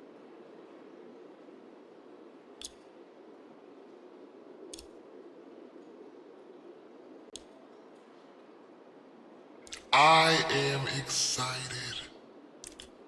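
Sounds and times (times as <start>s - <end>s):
low muffled rain: 0.0s - 13.0s
sharp clicks: 2.6s - 2.8s, 4.7s - 4.9s, 12.6s - 13.0s.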